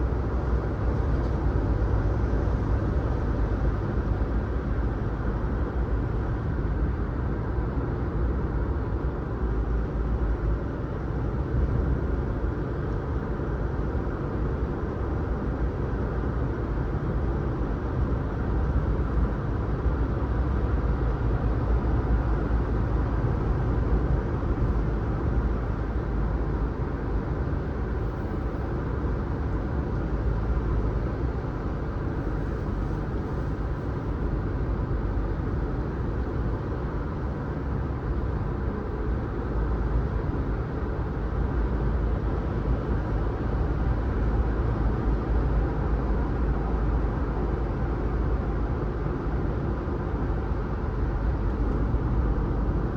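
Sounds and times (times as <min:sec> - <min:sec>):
car engine and tyre rumble: 0:00.0 - 0:52.9.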